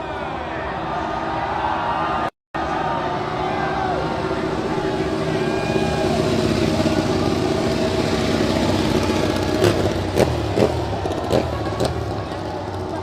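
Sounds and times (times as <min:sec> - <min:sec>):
motorcycle engines running: 0:02.6 - 0:13.0.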